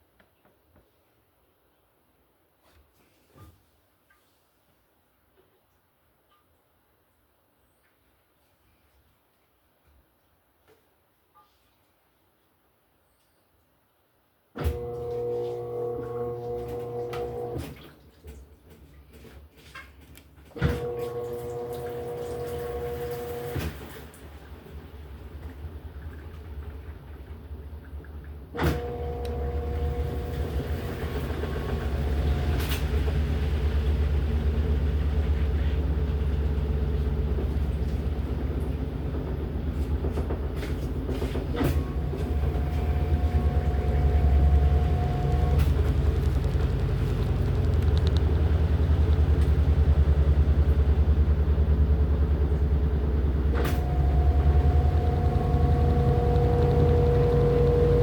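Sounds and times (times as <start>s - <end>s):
washing machine motor running: 14.6s - 17.9s, 20.5s - 58.0s.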